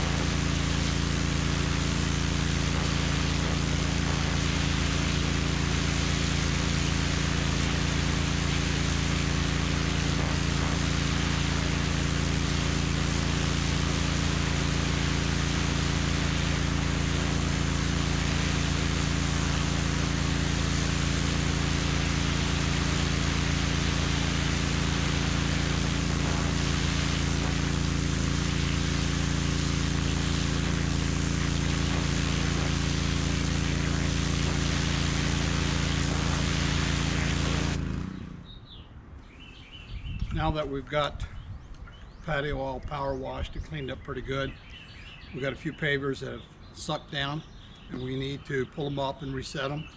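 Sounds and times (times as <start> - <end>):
water jet hissing: 0.0 - 37.9
pressure washer engine drone: 0.0 - 38.8.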